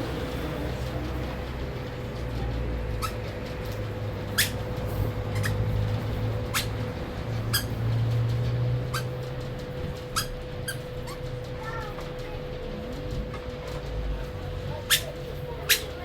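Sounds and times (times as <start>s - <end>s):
steady low hum: 0.0s - 16.0s
sharp high-pitched animal calls: 3.0s - 3.2s, 4.3s - 4.6s, 5.3s - 5.7s, 6.5s - 6.8s, 7.5s - 7.8s, 8.9s - 9.2s, 10.2s - 11.3s, 14.9s - 16.0s.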